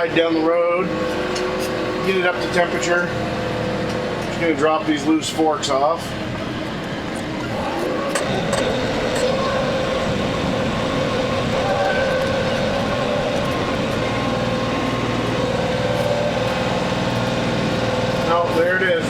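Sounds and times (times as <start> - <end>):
steady whine: 0.0 - 19.0
tractor diesel engine running: 0.0 - 19.0.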